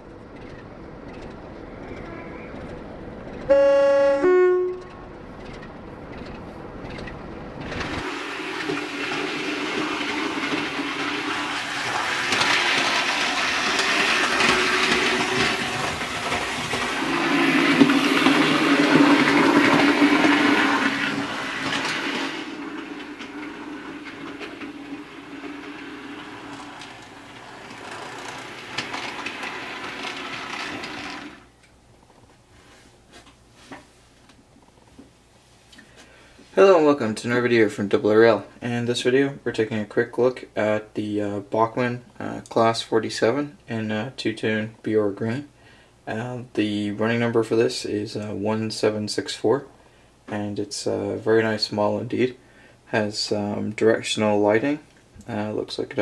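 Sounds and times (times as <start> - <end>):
train passing: 0.0 - 31.5
two-tone train horn: 3.5 - 5.0.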